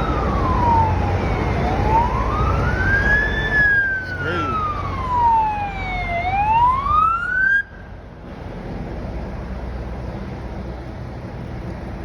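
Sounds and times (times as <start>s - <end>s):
emergency siren wailing: 0.0s - 7.9s
low engine rumble: 0.0s - 12.0s.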